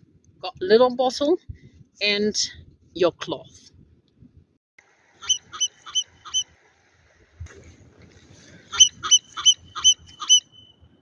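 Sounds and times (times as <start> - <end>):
marmot alarm calls: 5.2 - 6.6, 8.7 - 10.8.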